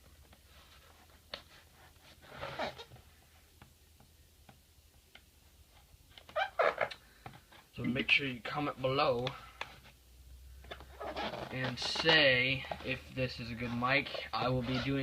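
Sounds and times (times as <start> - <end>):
scraping rustle: 10.8 - 15.0.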